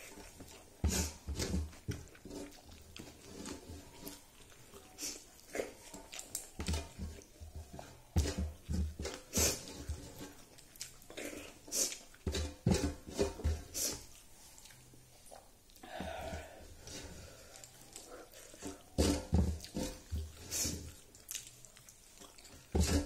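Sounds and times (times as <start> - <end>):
wet chewing and lip smacks: 4.0 - 6.9, 10.4 - 12.2, 14.1 - 15.8, 17.4 - 18.9, 19.6 - 22.7.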